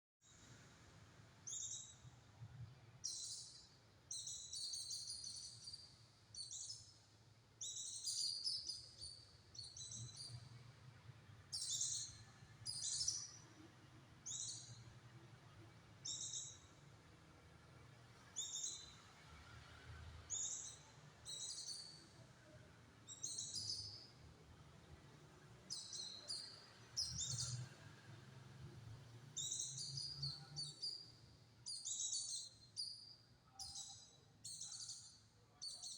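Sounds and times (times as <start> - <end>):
bird singing high chirps: 3.0 - 5.8, 11.5 - 13.5, 14.3 - 14.8, 16.0 - 16.7, 18.4 - 19.0, 20.3 - 22.0, 23.1 - 24.1, 25.7 - 27.7, 29.4 - 31.1, 31.7 - 35.9.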